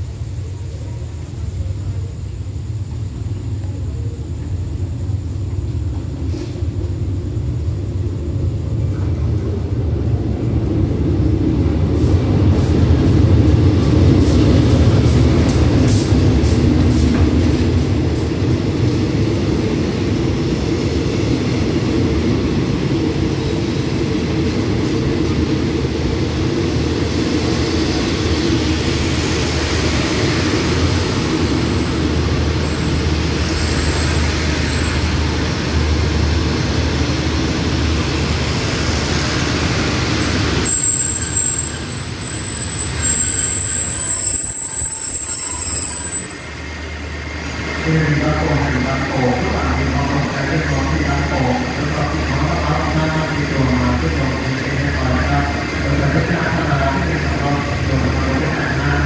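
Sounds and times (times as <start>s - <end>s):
train coaches rolling: 0.0s - 59.0s
brake squeal: 40.2s - 46.6s.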